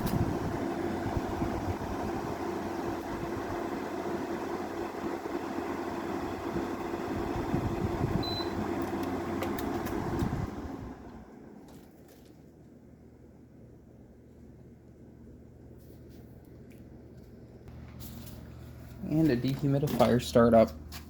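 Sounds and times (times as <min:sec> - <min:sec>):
air conditioner humming: 0:00.0 - 0:21.0
short electronic beep: 0:08.2 - 0:08.6.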